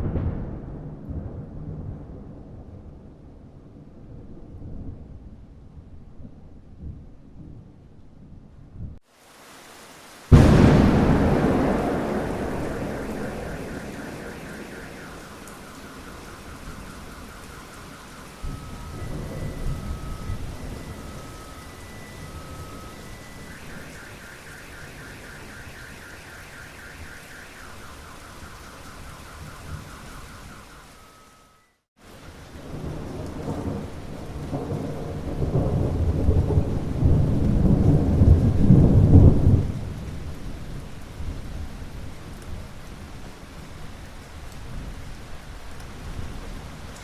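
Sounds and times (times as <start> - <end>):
thunder rolling: 0.0 - 7.8, 10.3 - 31.4, 32.4 - 41.9
steady rain: 9.0 - 47.0
faint pulsing tone: 11.2 - 31.8.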